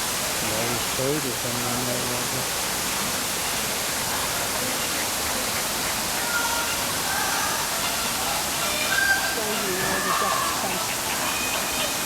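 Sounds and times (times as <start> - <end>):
falling water rushing: 0.0 - 12.0.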